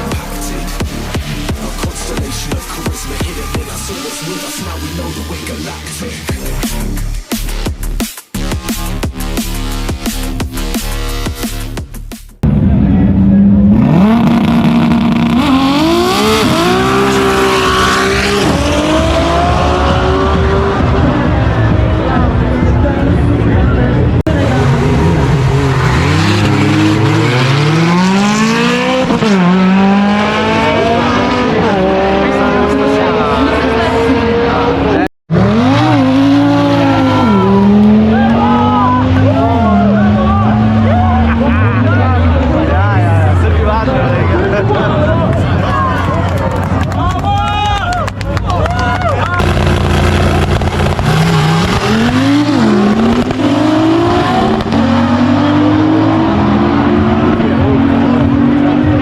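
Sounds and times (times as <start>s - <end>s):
car engine accelerating: 12.4s - 47.1s, 49.0s - 59.0s.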